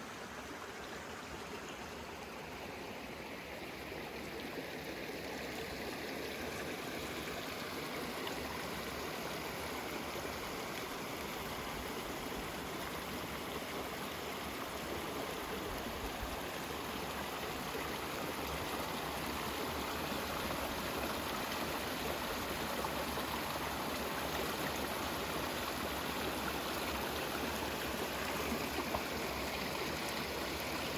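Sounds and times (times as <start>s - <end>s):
water rushing over rocks: 16.0s - 30.9s.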